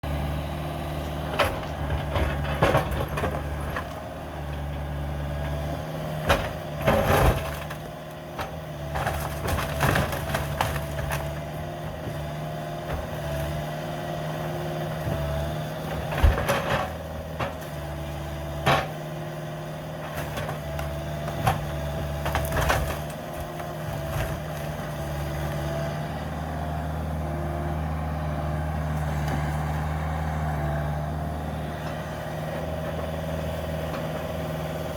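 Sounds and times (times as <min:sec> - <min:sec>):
excavator diesel engine running: 0:00.0 - 0:34.9
timber cracking and crashing: 0:09.0 - 0:11.6, 0:20.1 - 0:25.7.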